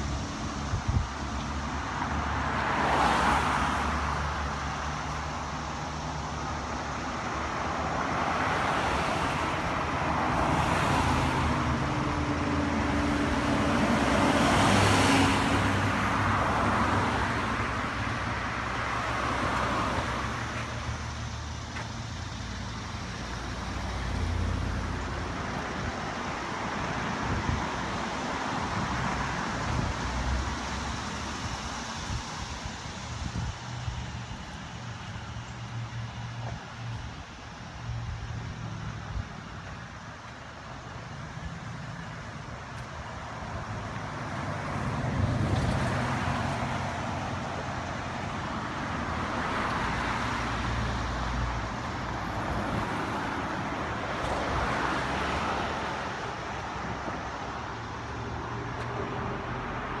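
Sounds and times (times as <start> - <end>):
steady traffic hum: 0.0 - 60.0
vehicles passing: 0.0 - 60.0.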